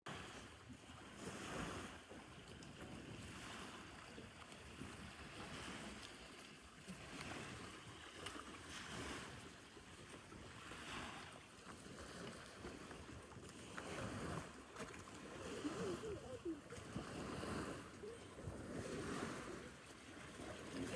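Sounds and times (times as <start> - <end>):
wind on microphone: 10.6 - 20.9
water washing: 13.4 - 20.9.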